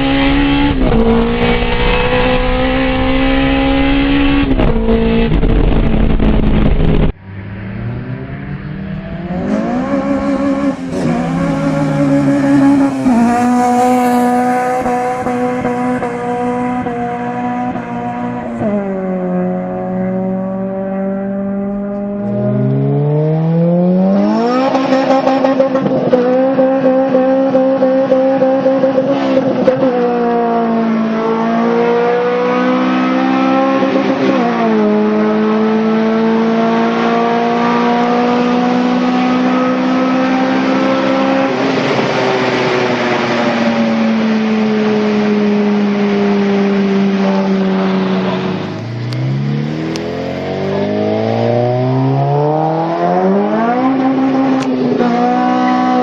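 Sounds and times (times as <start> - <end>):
car engine revving at high revs: 0.0 - 56.0.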